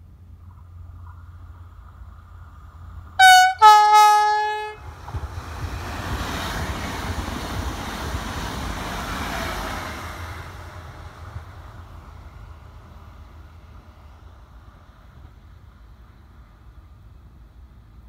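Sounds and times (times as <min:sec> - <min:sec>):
train wheels rumbling on rails: 0:00.0 - 0:18.0
train horn: 0:03.2 - 0:04.9.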